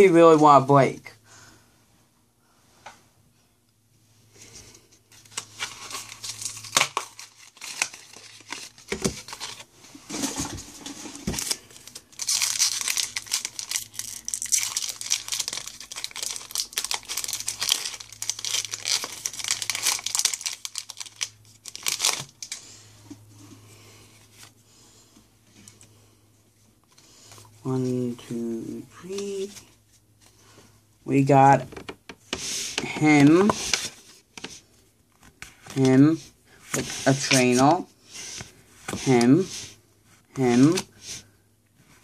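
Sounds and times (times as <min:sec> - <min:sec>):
foil wrapper tearing and crinkling: 0:05.2 - 0:09.6, 0:11.4 - 0:22.6
cards being handled: 0:36.7 - 0:39.6.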